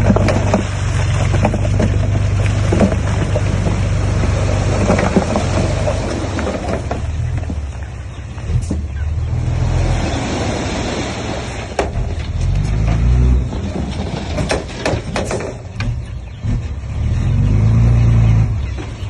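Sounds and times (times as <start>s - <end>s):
machinery knocks and clanks: 0.0s - 9.1s, 11.7s - 16.9s.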